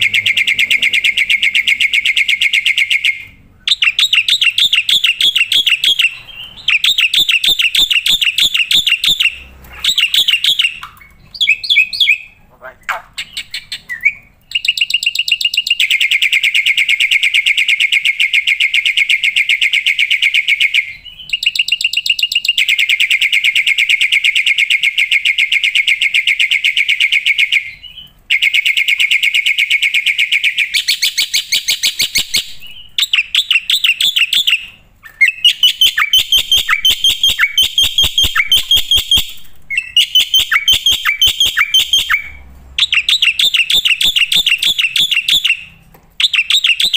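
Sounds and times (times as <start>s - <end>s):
bird singing rapid trills: 0.0s - 12.4s, 27.6s - 46.9s.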